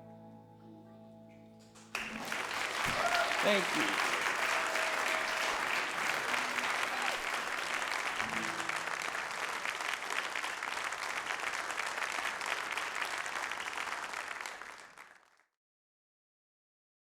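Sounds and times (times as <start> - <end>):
audience applauding: 1.6 - 15.4.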